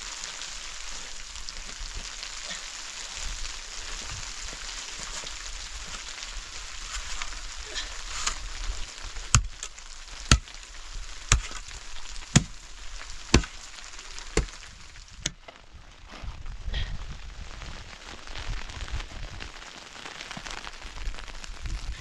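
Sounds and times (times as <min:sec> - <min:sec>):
steady hiss: 0:00.0 - 0:15.5
sharp chopping knocks: 0:09.4 - 0:09.6, 0:11.3 - 0:11.6, 0:12.4 - 0:12.6, 0:13.3 - 0:13.6.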